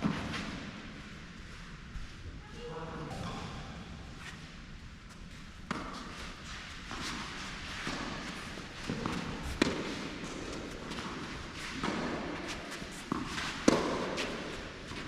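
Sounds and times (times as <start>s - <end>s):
tennis balls struck by rackets: 5.6s - 15.0s.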